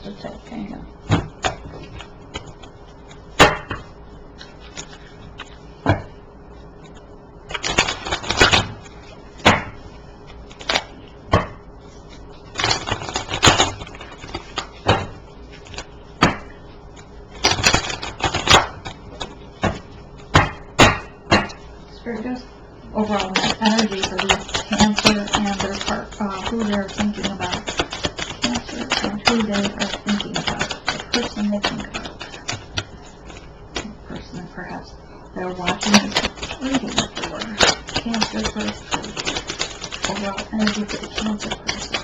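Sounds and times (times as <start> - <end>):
cards shuffling: 1.4 - 3.8, 4.4 - 5.6, 6.8 - 9.0, 10.3 - 11.0, 12.1 - 15.9, 17.0 - 19.8, 23.1 - 33.9, 35.6 - 42.0
cards tapped down: 7.5 - 8.8, 10.5 - 11.6, 12.6 - 16.5, 17.4 - 19.8, 23.1 - 33.9, 35.7 - 42.0.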